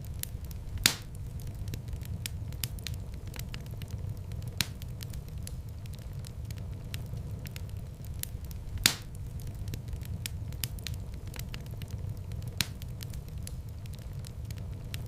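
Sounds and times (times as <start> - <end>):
low rumble of flames: 0.0 - 15.0
wood fire crackling: 0.0 - 15.0
loud fire pop: 0.8 - 1.2, 8.8 - 9.2.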